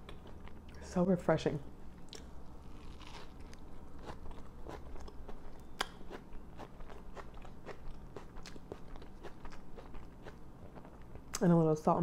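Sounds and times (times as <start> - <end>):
mouth clicks chewing soft bread: 4.0 - 11.4.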